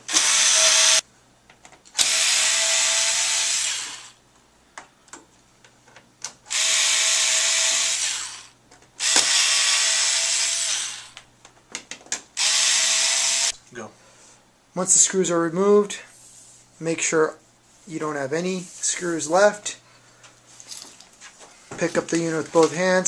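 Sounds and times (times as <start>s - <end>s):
power screwdriver motor running: 0.1s - 1.0s, 2.0s - 4.2s, 6.5s - 11.2s, 12.4s - 13.6s.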